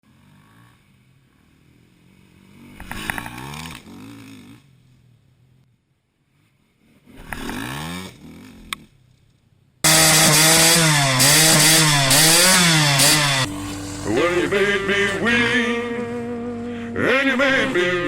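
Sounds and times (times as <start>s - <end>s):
small motorcycle engine revving: 0.1s - 4.8s, 6.3s - 9.0s, 9.8s - 18.0s.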